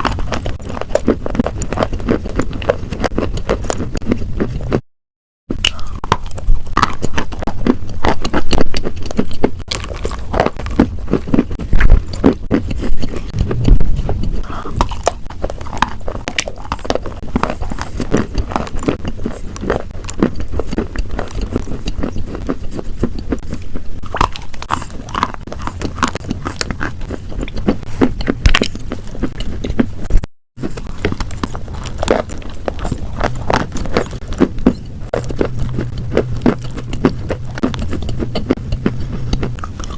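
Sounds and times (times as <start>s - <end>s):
crisp crunching crackles: 5.6s - 27.8s, 30.6s - 38.5s.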